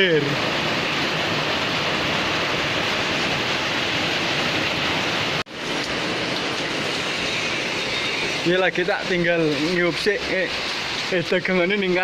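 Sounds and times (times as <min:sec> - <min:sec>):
heavy rain: 0:00.0 - 0:12.0
running water: 0:06.4 - 0:12.0.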